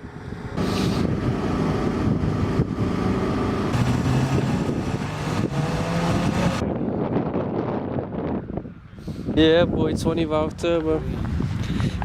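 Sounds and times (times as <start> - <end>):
car engine running: 0.0 - 6.6.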